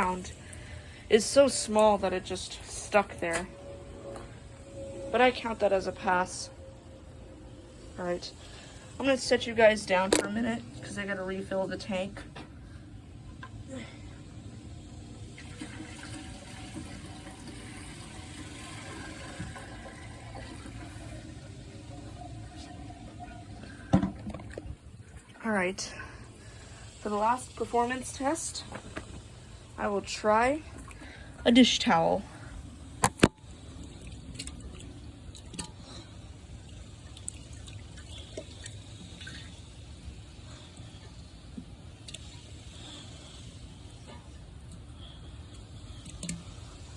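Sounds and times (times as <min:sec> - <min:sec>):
toilet tank refilling: 0:14.3 - 0:25.4, 0:32.8 - 0:44.5
water dripping in toilet bowl: 0:32.9 - 0:42.7, 0:43.8 - 0:46.7.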